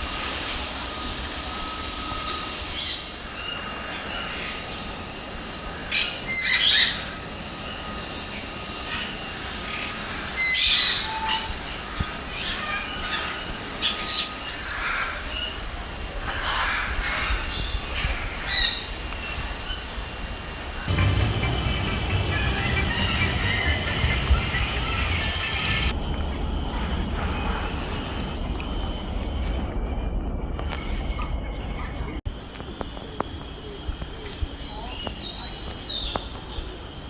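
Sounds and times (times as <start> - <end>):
birds calling and squawking: 2.1 - 20.1, 20.8 - 26.2.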